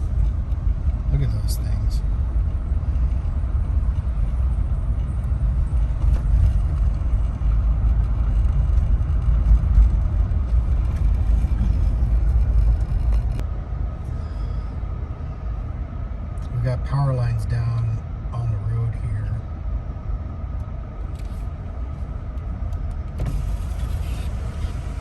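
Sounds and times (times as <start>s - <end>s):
motor vehicle rumble: 0.0s - 25.0s.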